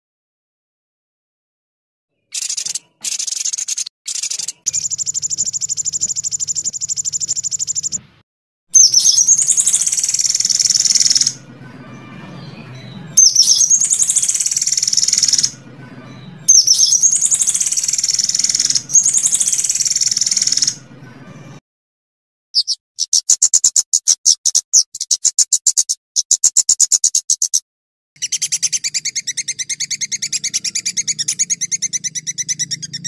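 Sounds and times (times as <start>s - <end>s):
bird chattering calls: 2.3s - 8.0s, 8.8s - 11.4s, 13.2s - 15.6s, 16.5s - 20.8s, 28.2s - 33.0s
songbird trilling: 2.3s - 8.0s, 8.8s - 11.4s, 12.8s - 15.6s, 16.5s - 20.8s, 22.6s - 27.6s, 28.2s - 33.0s.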